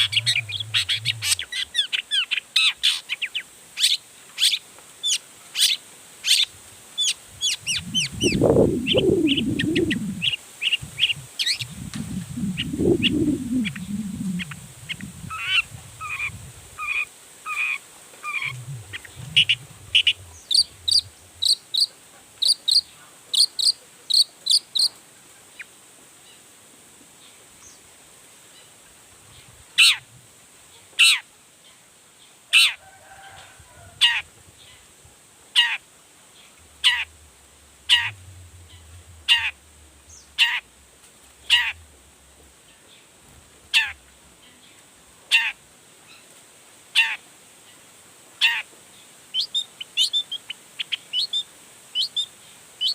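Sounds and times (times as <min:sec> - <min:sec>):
low rumbling noise: 0:00.0 - 0:01.7, 0:07.3 - 0:16.8, 0:18.2 - 0:21.8, 0:36.6 - 0:44.4
bird singing sharp chirps: 0:07.4 - 0:15.1.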